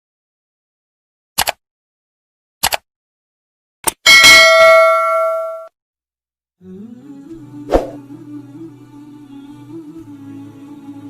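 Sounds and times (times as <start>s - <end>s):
quick double clicks: 1.4s - 1.6s, 2.6s - 2.8s
bright bell-like ding: 4.1s - 5.7s.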